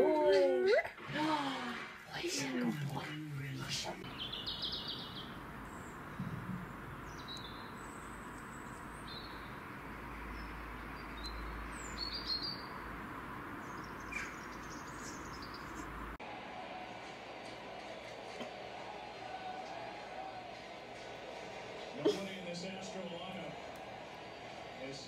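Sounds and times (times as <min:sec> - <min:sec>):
outdoor background hiss: 0:00.9 - 0:16.2
small birds chirping: 0:03.8 - 0:16.2.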